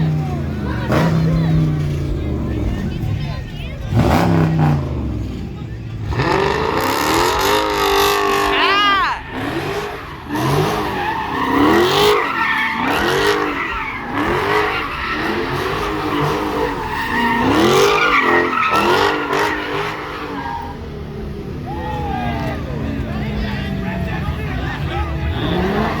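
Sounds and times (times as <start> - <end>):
car engine revving: 0.0 - 26.0
tyres screeching: 3.9 - 22.8.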